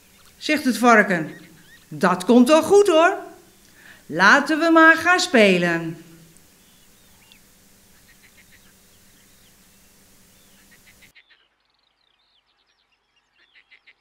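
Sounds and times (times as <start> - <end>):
songbirds chirping and trilling: 0.0 - 3.9, 6.4 - 14.0
background hiss: 0.0 - 11.1.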